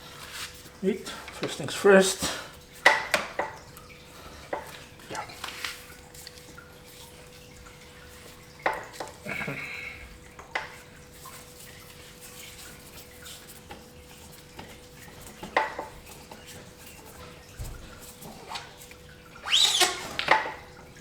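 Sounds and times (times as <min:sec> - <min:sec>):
short squeak: 0:19.4 - 0:20.2.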